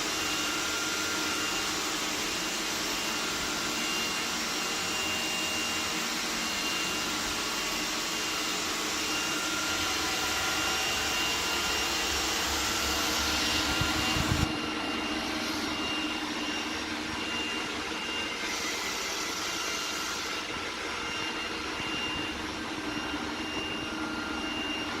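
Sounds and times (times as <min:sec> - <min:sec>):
robot vacuum whining: 0:00.0 - 0:25.0
brush and airflow noise: 0:12.0 - 0:16.4.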